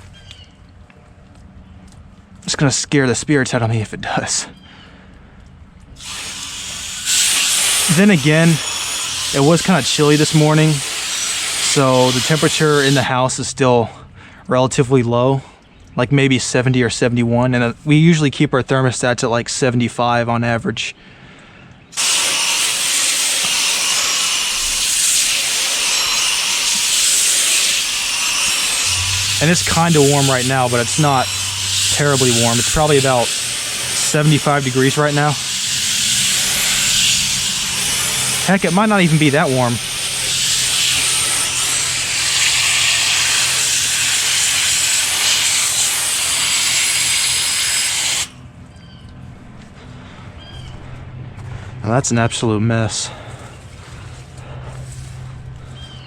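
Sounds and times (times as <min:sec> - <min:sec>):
garden hose spraying water: 0:06.0 - 0:13.3, 0:21.9 - 0:48.4.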